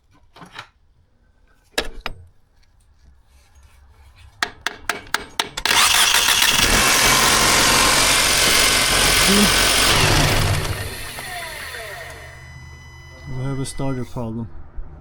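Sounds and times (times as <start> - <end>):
sharp knocks on metal: 4.4 - 5.7
car engine starting and running: 5.7 - 14.0.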